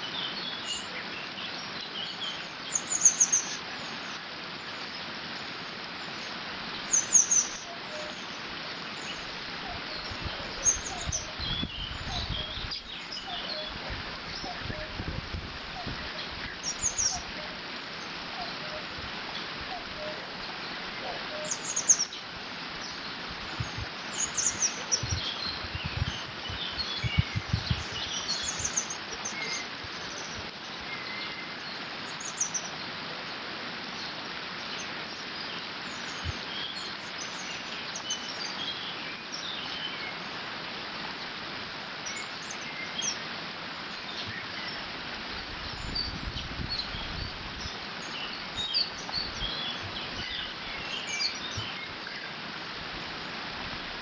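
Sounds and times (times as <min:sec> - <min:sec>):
small birds chirping: 0:00.0 - 0:40.5, 0:42.0 - 0:53.5
wind gusts rumbling: 0:09.3 - 0:17.5, 0:22.3 - 0:29.0.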